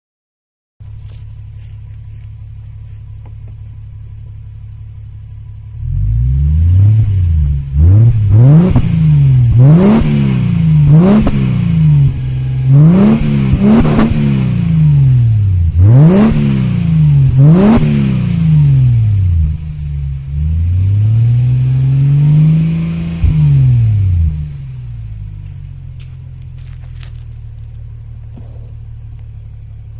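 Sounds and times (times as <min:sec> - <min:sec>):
exhaust cracks: 0:00.8 - 0:04.2, 0:06.9 - 0:19.7, 0:22.5 - 0:29.9
car engine idling and revving: 0:00.8 - 0:29.9.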